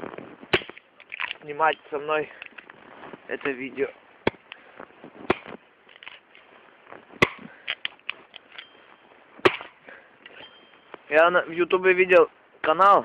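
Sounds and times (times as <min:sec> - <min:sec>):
axe chopping wood: 0:00.5 - 0:00.9, 0:04.2 - 0:04.6, 0:05.2 - 0:05.6, 0:07.2 - 0:07.8, 0:09.4 - 0:09.8.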